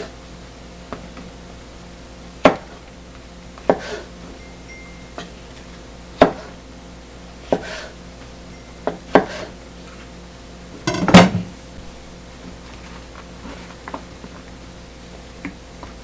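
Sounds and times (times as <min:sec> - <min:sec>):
utensils and dishes clinking: 0:04.4 - 0:05.8, 0:10.8 - 0:11.6.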